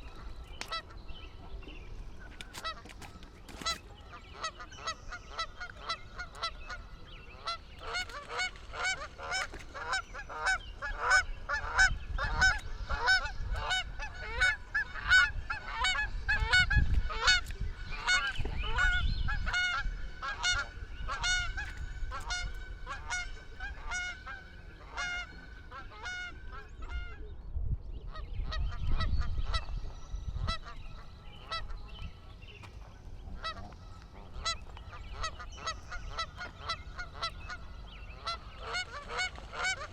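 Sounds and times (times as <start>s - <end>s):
geese honking: 2.5s - 27.2s, 33.3s - 39.9s.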